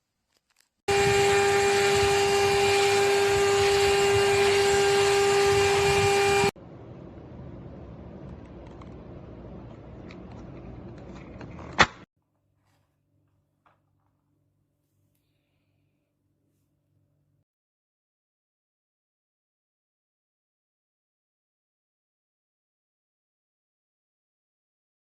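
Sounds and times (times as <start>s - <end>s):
vacuum cleaner motor whining: 0.9s - 6.6s.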